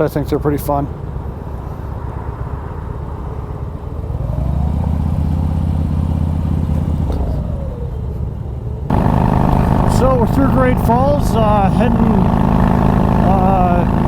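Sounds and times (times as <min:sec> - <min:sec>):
motorcycle engine running: 0:03.6 - 0:14.0.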